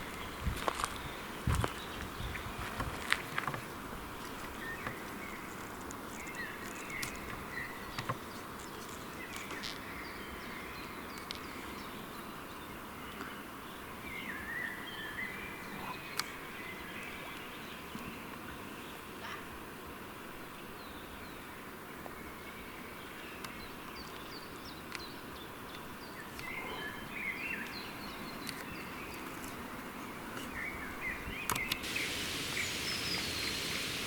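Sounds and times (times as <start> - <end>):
insect hum: 31.5 - 34.0
short chirping calls: 31.8 - 34.0.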